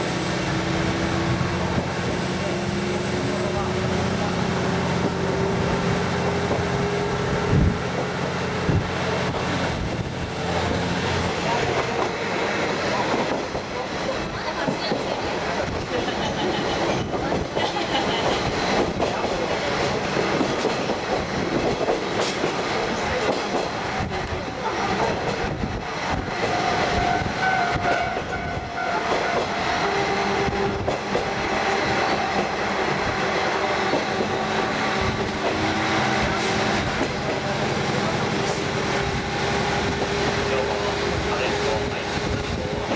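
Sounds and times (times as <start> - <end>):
railcar running rumble: 0.0 - 42.9
railcar wheels clicking over rail joints: 14.4 - 26.6, 32.2 - 42.9.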